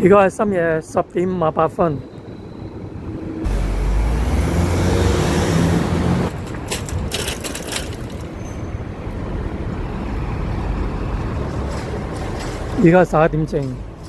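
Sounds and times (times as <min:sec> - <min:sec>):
traffic noise: 0:00.0 - 0:14.0
vehicle engine humming: 0:02.2 - 0:14.0
sharp clicks and rattles: 0:06.3 - 0:08.5.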